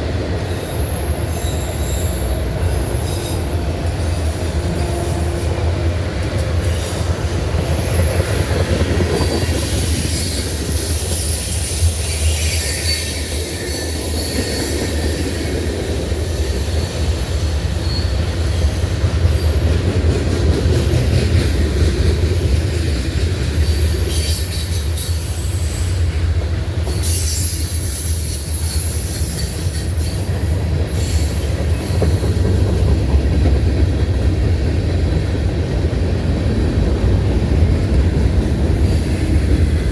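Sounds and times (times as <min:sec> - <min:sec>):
freight train rumbling past: 0:00.0 - 0:39.9
steel wheels squealing: 0:00.4 - 0:05.7, 0:06.5 - 0:19.8, 0:23.5 - 0:33.2.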